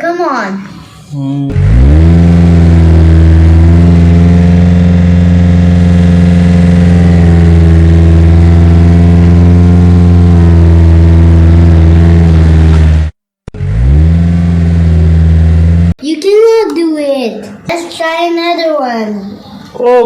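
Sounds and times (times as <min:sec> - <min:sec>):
bulldozer engine running: 0:01.5 - 0:16.0.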